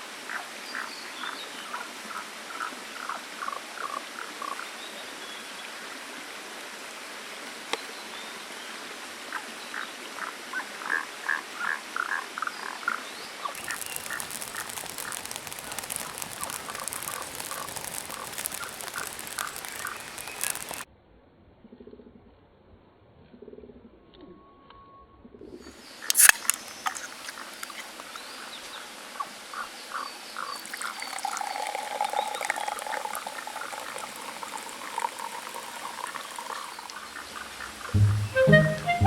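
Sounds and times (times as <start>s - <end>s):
frogs calling: 13.6s - 20.8s
dense crackling clicks: 13.6s - 20.9s, 26.1s - 27.9s, 33.6s - 39.0s.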